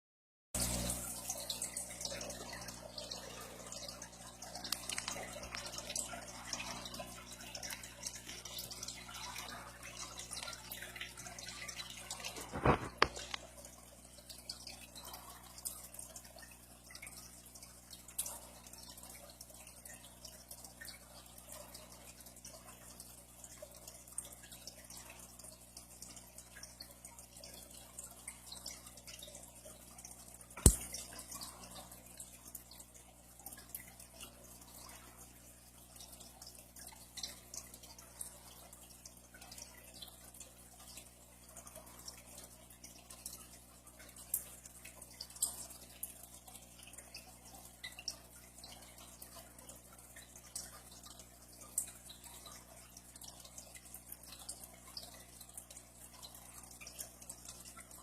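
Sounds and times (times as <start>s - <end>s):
faint irregular clicks: 4.6s - 5.7s.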